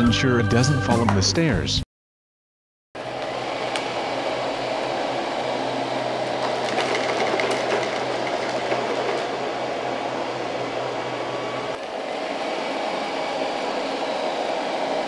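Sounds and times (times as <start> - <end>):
robot vacuum whirring: 3.0 - 15.0
faint clicks and rattles: 6.4 - 9.4.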